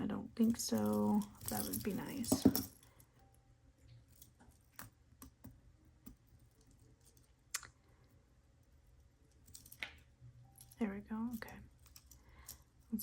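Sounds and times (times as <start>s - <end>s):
jewelry pieces clicking together: 9.3s - 13.0s.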